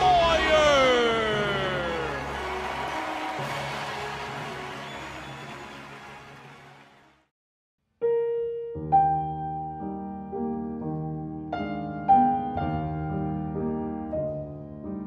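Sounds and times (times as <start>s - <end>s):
slow piano music: 7.9s - 15.0s.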